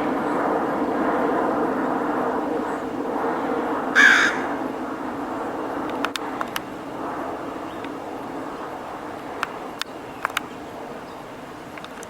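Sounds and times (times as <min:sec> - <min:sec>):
harsh cawing bird call: 0:03.9 - 0:04.6.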